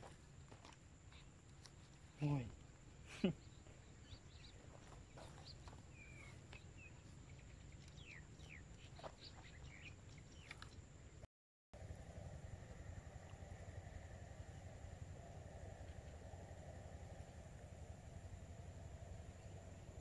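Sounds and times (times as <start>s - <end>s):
outdoor background noise: 0.0s - 20.0s
faint bird chirps: 1.1s - 11.2s.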